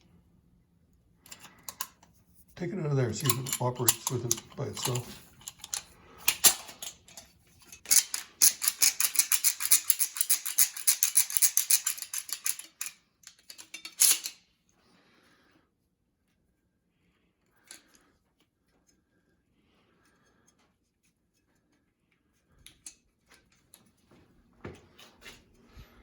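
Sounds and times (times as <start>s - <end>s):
caulking gun metallic clicks: 3.2s - 7.2s.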